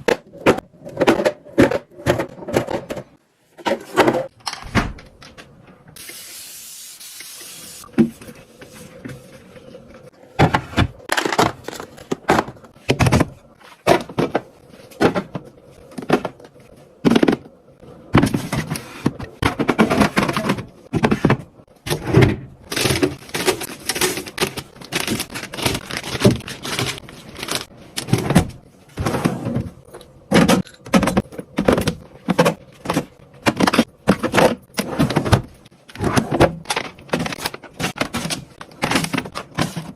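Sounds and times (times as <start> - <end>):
plastic boxes and bags handled: 7.8 - 39.9.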